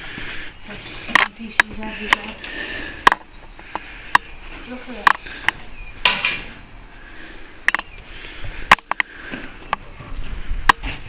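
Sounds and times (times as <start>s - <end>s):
footsteps crunching on concrete: 0.0s - 11.0s.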